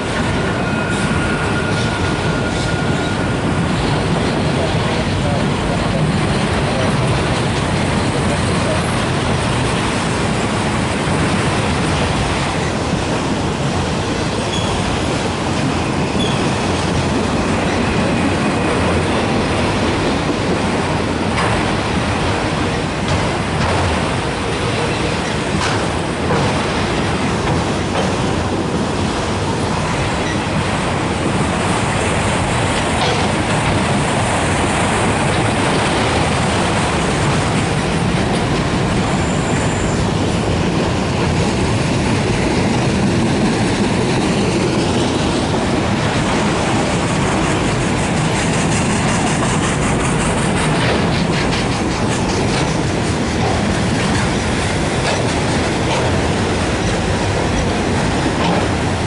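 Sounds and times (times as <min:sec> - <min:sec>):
train wheels rumbling on rails: 0:00.0 - 0:59.0
faint high wheel squeal: 0:00.4 - 0:03.7, 0:14.4 - 0:14.8, 0:15.8 - 0:16.6, 0:39.0 - 0:40.2
clicking over rail joints: 0:19.6 - 0:28.6, 0:32.6 - 0:34.4, 0:41.2 - 0:59.0.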